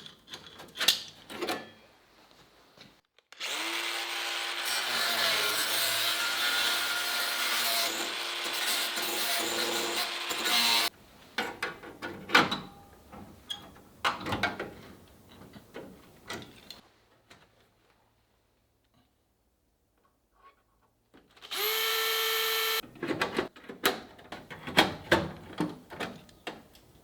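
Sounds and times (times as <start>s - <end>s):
handheld power tool running: 3.4s - 5.0s, 21.5s - 22.8s.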